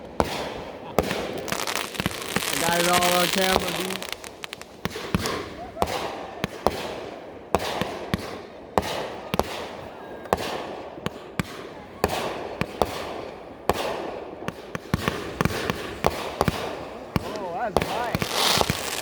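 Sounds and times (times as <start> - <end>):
fireworks bangs: 0.0 - 9.8, 11.4 - 19.0.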